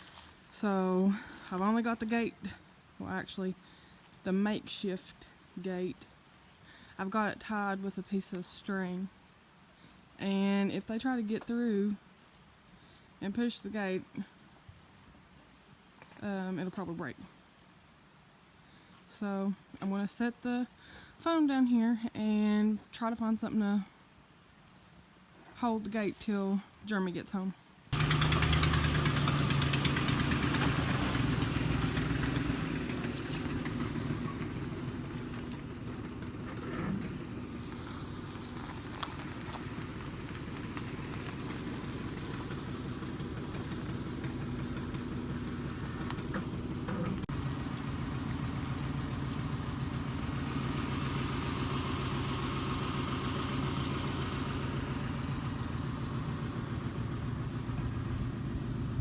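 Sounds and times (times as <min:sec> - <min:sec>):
vehicle engine humming: 0:00.0 - 0:03.4, 0:27.9 - 0:59.0.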